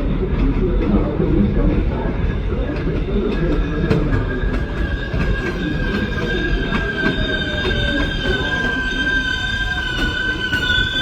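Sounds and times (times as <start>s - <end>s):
train wheels rumbling on rail: 0.0s - 11.0s
high-pitched wheel squeal: 3.9s - 11.0s.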